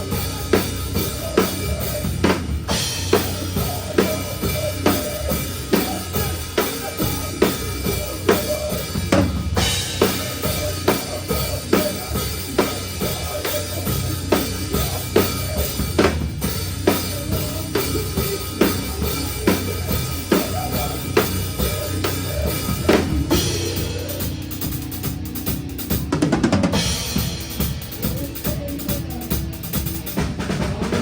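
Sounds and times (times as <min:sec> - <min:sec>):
heavy drum beat: 0:00.0 - 0:31.0
live metal band playing: 0:00.0 - 0:31.0.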